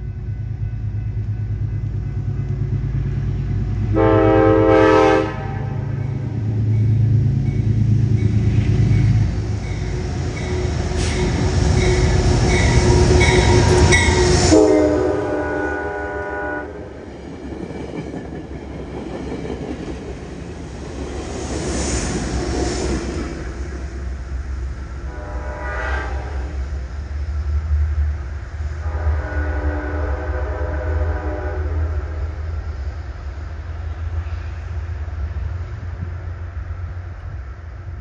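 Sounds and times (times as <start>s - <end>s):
locomotive engine rumble: 0.0s - 38.0s
locomotive air horn blast: 3.9s - 6.0s, 10.9s - 16.9s, 25.0s - 26.7s, 28.7s - 32.4s.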